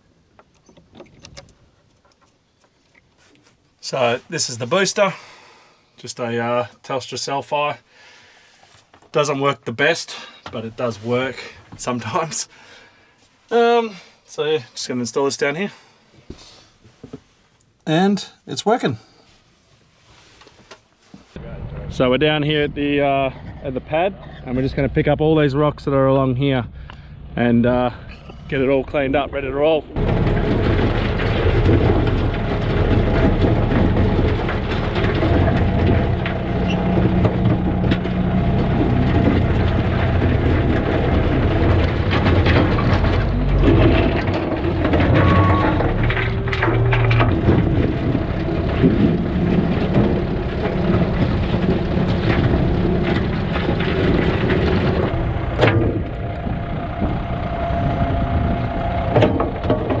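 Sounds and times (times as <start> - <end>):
rocks clattering and cracking: 30.0 - 57.5, 58.1 - 60.0
vehicle engine running: 30.0 - 60.0.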